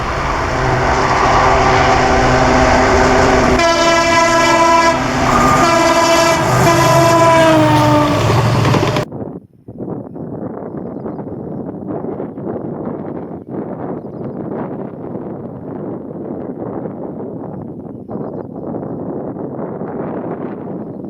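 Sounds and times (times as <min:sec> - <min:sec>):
locomotive engine and rail noise: 0:00.0 - 0:09.1
locomotive horn blasts: 0:00.0 - 0:09.1.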